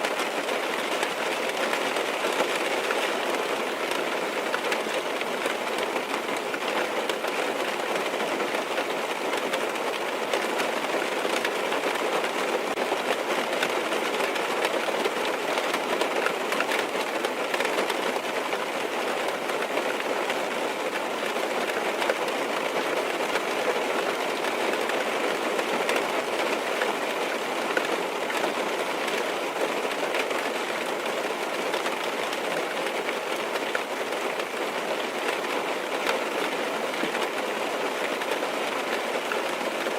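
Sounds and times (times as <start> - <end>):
rain on car roof: 0.0 - 39.9.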